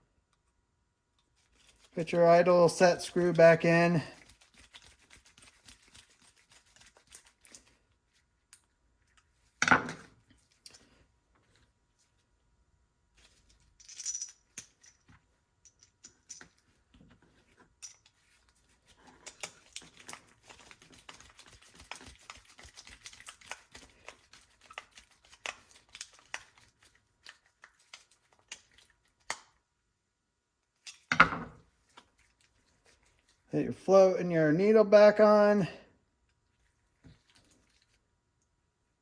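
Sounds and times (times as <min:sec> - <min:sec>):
small metal parts clicking: 0:13.4 - 0:16.6.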